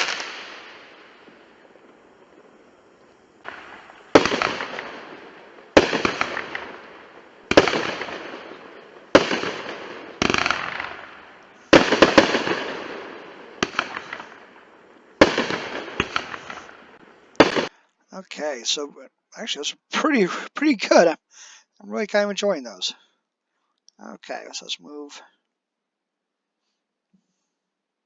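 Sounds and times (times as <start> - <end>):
fireworks bangs: 0.0 - 17.7, 18.4 - 21.2
fireworks crackle: 0.0 - 23.0.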